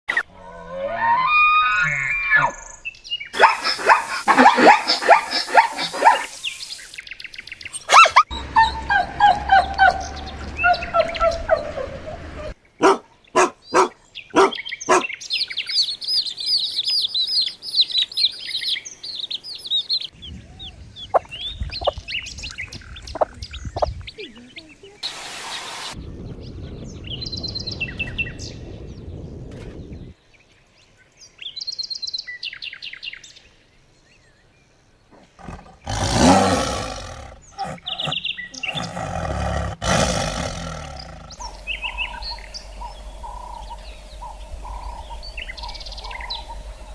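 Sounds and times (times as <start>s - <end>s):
birds chirping and trilling: 0.1s - 46.9s
animal sounds: 7.8s - 15.2s, 35.1s - 46.9s.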